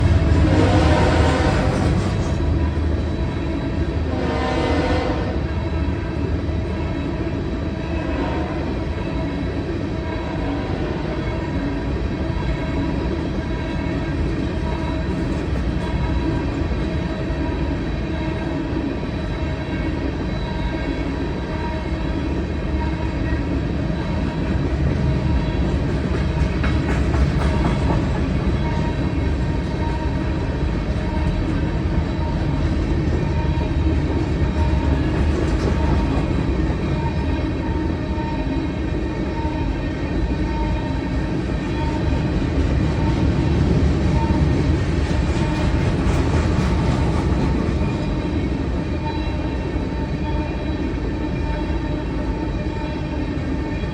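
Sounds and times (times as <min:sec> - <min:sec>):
train rumbling and rattling: 0:00.0 - 0:53.9
wheels clacking over rail joints: 0:25.6 - 0:30.1.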